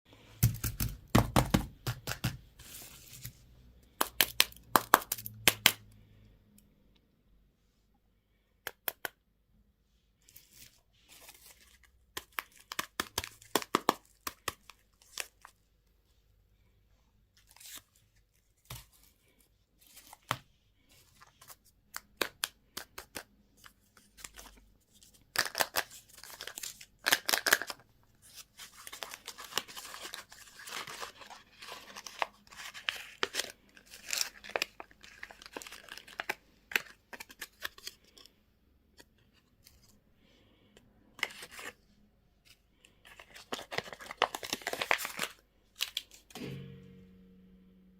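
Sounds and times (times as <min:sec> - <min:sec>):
packaging being torn open: 0:25.3 - 0:27.8, 0:28.7 - 0:38.1, 0:43.1 - 0:46.2
wrappers crinkling: 0:28.7 - 0:38.2, 0:43.0 - 0:46.2.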